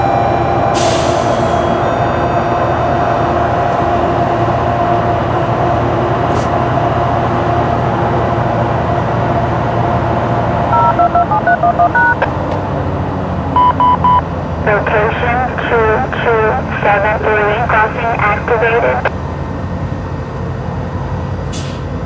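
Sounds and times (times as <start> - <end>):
train rumbling: 0.0 - 22.0
short electronic beeps: 10.8 - 12.3, 13.6 - 14.2.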